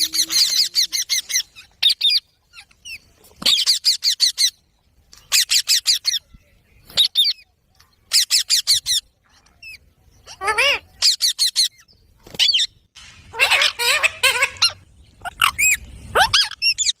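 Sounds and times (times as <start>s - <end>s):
parrot screeching: 10.3s - 11.2s, 13.3s - 17.0s.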